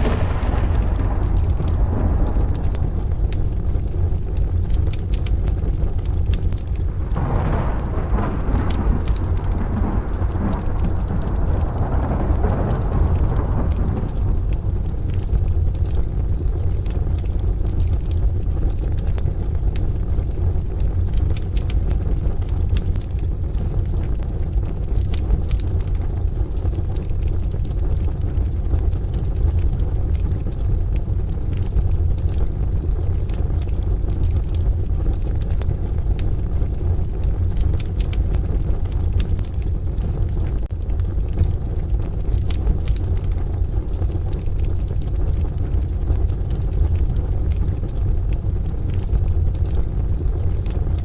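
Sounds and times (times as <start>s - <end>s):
distant thunder: 0.0s - 5.3s, 6.6s - 16.1s
deep low rumble: 0.0s - 51.0s
rain: 0.0s - 51.0s
wood fire crackling: 0.0s - 51.0s.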